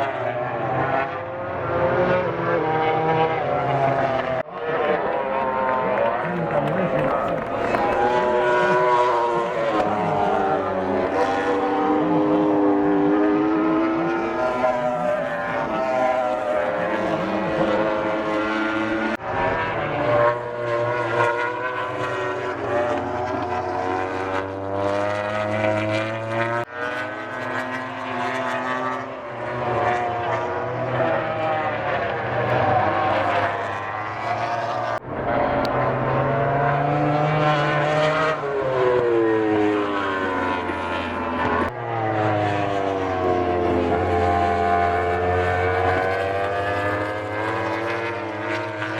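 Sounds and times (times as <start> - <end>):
racing motorcycle engines revving: 0.0 - 48.9.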